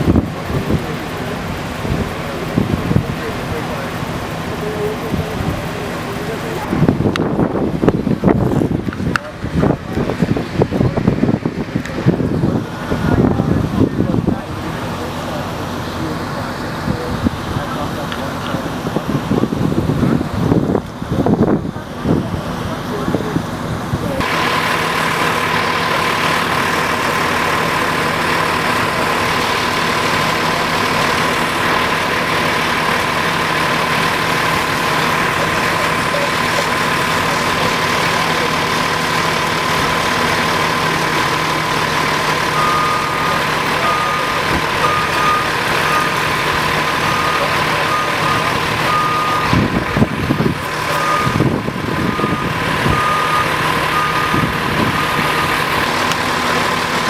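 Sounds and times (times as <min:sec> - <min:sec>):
heavy trucks idling: 0:00.0 - 0:57.0
reversing beeper beeping: 0:42.2 - 0:49.8, 0:50.8 - 0:56.7.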